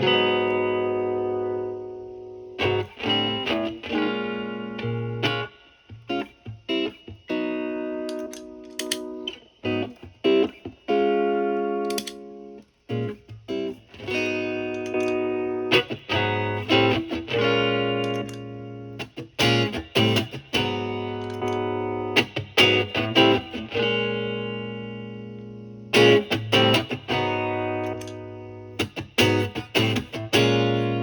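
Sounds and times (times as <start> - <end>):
overdriven electric guitar: 0.0 - 31.0.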